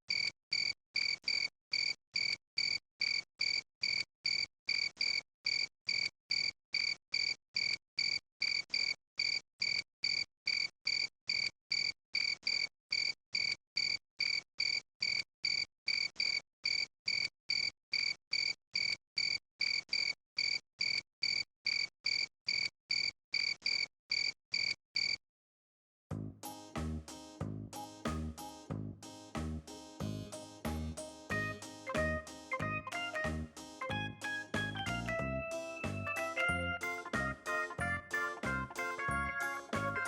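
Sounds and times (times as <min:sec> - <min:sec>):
music: 0:26.1 - 0:40.0.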